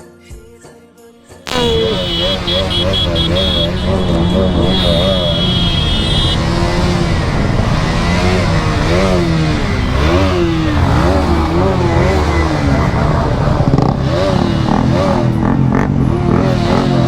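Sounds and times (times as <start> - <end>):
sharp cracks: 1.5 - 12.6
motorcycle engine revving: 1.5 - 17.0.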